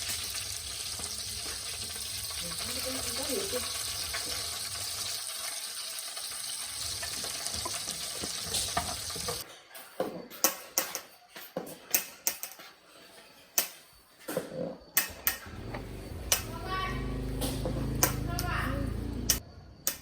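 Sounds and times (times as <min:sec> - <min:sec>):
water running from tap: 0:00.0 - 0:09.4
sharp clicks and knocks: 0:17.4 - 0:18.5.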